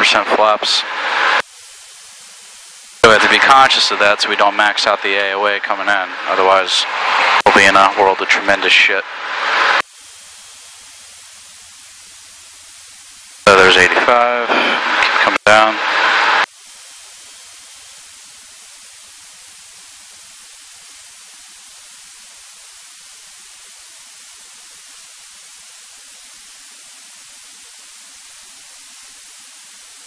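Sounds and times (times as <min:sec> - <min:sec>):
steady electronic hiss: 0:00.0 - 0:30.0.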